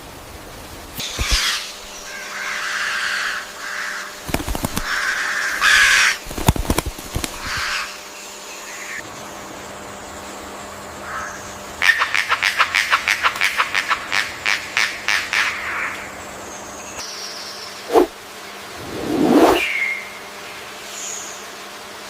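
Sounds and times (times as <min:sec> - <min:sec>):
rapid clipped bird notes: 0:01.0 - 0:02.1, 0:04.2 - 0:07.9.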